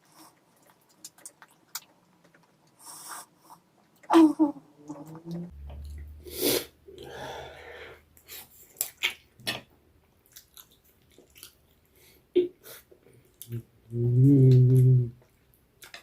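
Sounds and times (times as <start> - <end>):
person chewing food: 0.0 - 2.8, 8.1 - 13.7, 14.5 - 16.0.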